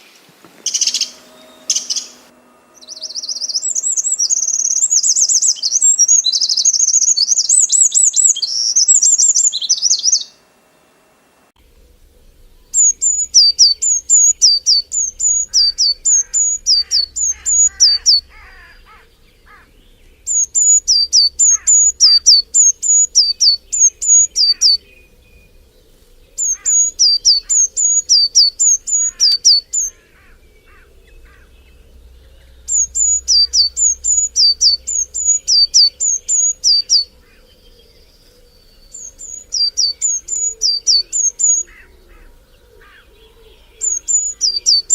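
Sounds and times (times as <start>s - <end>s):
bird singing down-slurred notes: 0.0s - 10.9s, 11.6s - 44.9s
faint lower bird calls: 0.0s - 11.0s, 11.6s - 44.9s
bird chattering warble: 0.6s - 10.4s, 11.8s - 44.9s.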